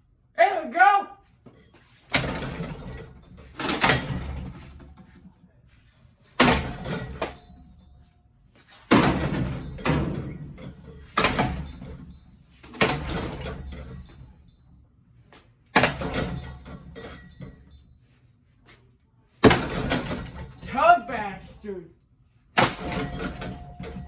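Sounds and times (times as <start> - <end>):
ceiling fan smashed with crashes: 6.4 - 7.6, 8.9 - 13.9, 15.7 - 16.6, 19.4 - 20.8, 22.6 - 24.0.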